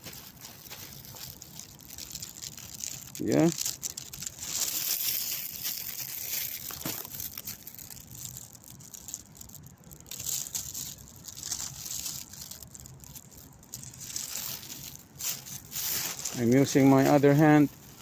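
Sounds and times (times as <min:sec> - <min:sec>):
plastic bag crinkling: 0:00.0 - 0:18.0.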